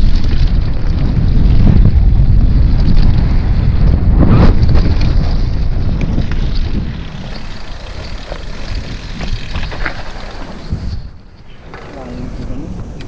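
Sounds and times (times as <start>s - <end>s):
wind buffeting microphone: 0.0s - 13.0s
bike frame knocks and rattles: 4.5s - 10.9s.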